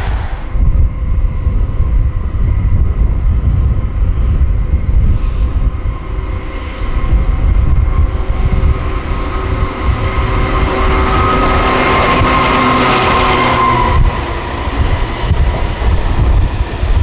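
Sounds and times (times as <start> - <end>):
train hiss: 0.0 - 0.6
gusty low rumble: 0.0 - 17.0
train traction equipment hum: 0.0 - 17.0.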